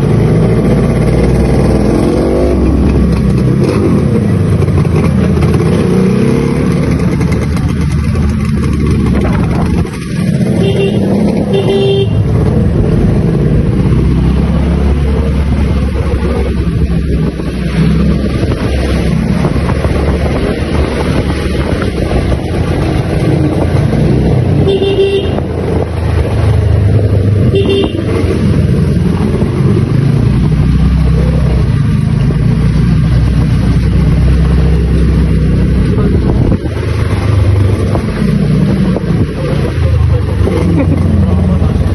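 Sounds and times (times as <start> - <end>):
motorcycle engine running: 0.0 - 41.9
vehicle horn toots: 10.6 - 12.2, 24.6 - 25.5, 27.4 - 28.2.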